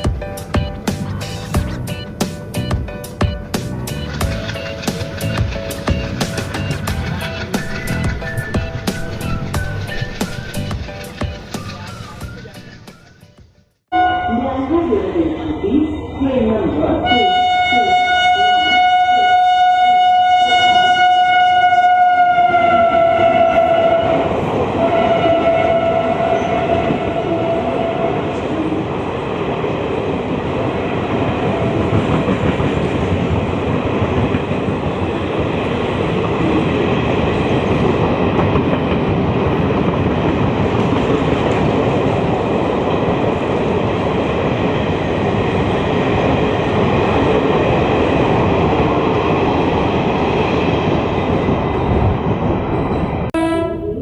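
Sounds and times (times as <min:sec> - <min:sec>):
train coaches rumbling and clattering: 0:00.0 - 0:13.6, 0:22.0 - 0:54.0
train horn blasts: 0:13.9 - 0:14.6, 0:17.0 - 0:28.4, 0:53.3 - 0:54.0.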